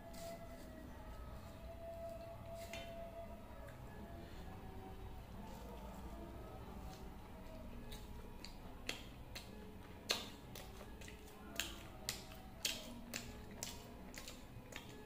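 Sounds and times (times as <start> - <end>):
person chewing: 6.7 - 15.0.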